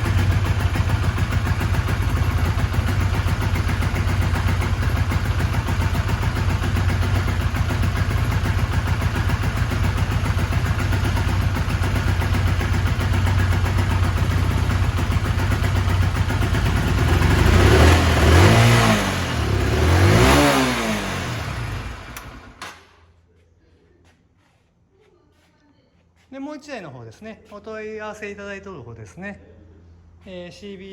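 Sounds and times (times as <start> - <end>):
motorcycle engine idling: 0.0 - 22.9
motorcycle engine revving: 0.0 - 22.9.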